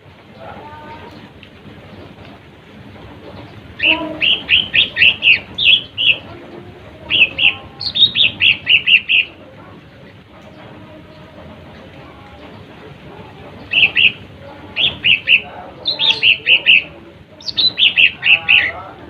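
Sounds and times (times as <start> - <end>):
bird high chattering song: 3.3 - 11.2, 13.5 - 19.0.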